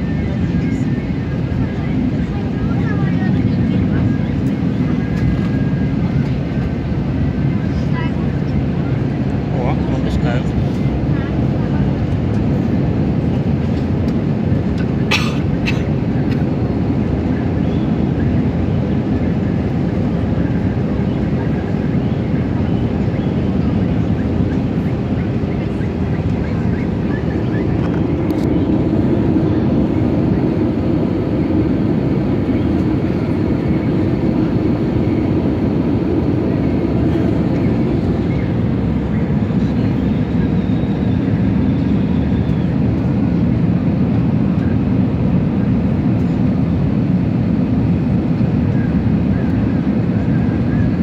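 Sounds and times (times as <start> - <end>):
jet engine cabin rumble: 0.0 - 51.0.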